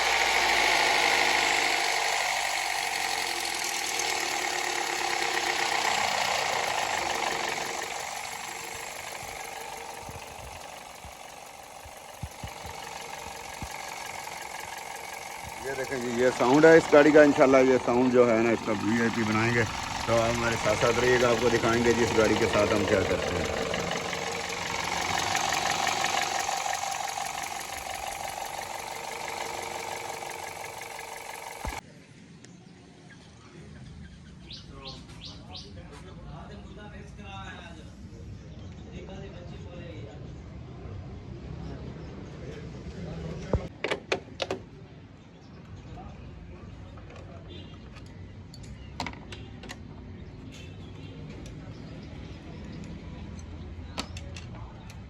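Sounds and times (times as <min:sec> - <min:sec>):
car engine running: 0:00.0 - 0:31.8
engine knocking: 0:00.0 - 0:31.8.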